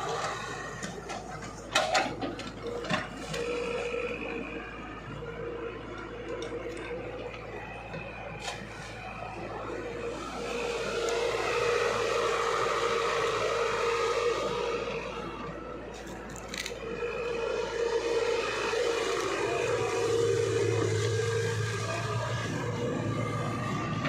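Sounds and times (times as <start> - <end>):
excavator whining: 0.0 - 24.0.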